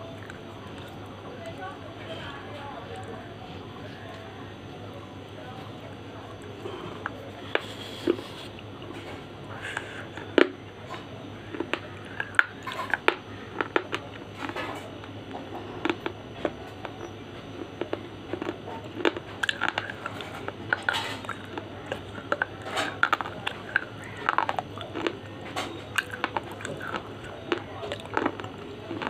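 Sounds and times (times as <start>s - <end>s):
slate crunching in mouth: 6.3s - 29.0s.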